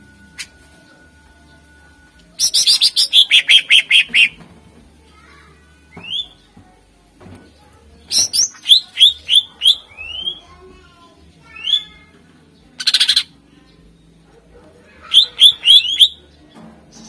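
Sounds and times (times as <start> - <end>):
bird harsh chattering: 2.4 - 4.4, 8.1 - 10.4, 12.8 - 13.3, 15.0 - 16.2
bird whistling song: 2.4 - 4.4, 5.9 - 6.4, 8.1 - 10.4, 15.1 - 16.2.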